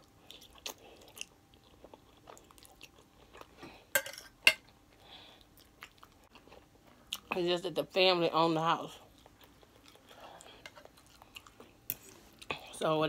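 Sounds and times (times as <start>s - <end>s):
chewing with wet mouth smacks: 0.0s - 3.6s, 5.4s - 7.3s, 9.0s - 12.6s.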